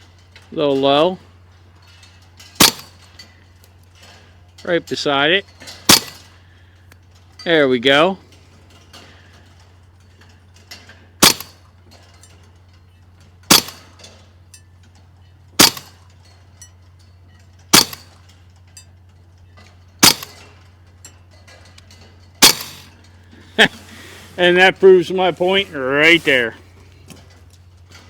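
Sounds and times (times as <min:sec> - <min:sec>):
air rifle shots: 0:02.6 - 0:03.0, 0:05.9 - 0:06.4, 0:11.2 - 0:11.6, 0:13.5 - 0:13.9, 0:15.6 - 0:16.0, 0:17.7 - 0:18.1, 0:20.0 - 0:20.4, 0:22.4 - 0:23.0.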